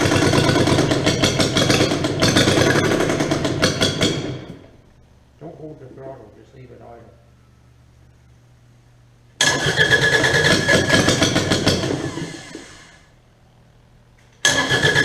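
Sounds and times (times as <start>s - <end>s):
diesel engine running: 0.0s - 3.8s
diesel engine cranking: 0.0s - 4.7s, 9.4s - 13.1s, 14.4s - 15.0s.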